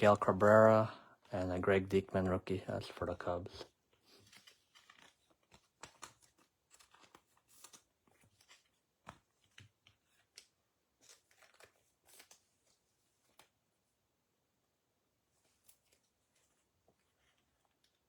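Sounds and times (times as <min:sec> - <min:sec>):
trading cards clicking and rustling: 0:02.8 - 0:13.5.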